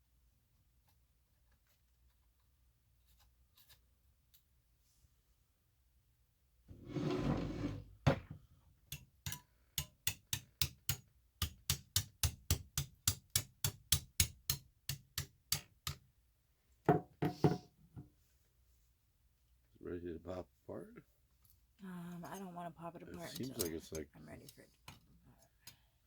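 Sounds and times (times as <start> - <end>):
short scrape: 6.7 - 7.8.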